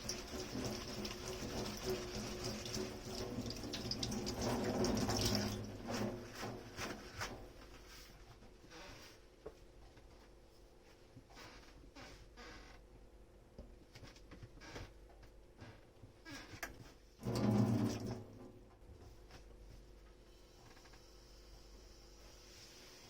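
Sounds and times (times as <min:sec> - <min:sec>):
tap running into sink: 0:00.0 - 0:07.5, 0:17.2 - 0:18.6.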